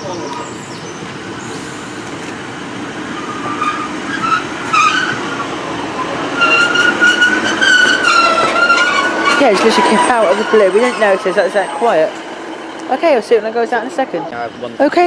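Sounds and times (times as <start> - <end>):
train rumbling and braking: 0.0 - 15.0
brake squeal and whine: 3.0 - 15.0.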